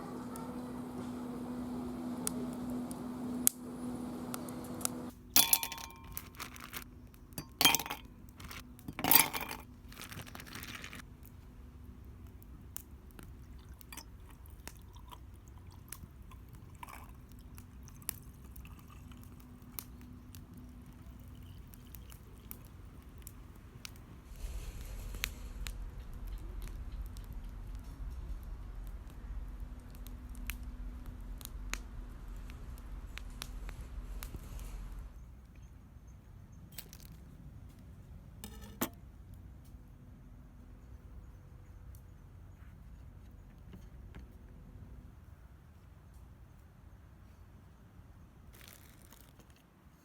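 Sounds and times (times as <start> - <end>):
steady low hum: 0.0 - 6.3
objects clinking and clattering: 5.4 - 6.8, 7.4 - 11.0.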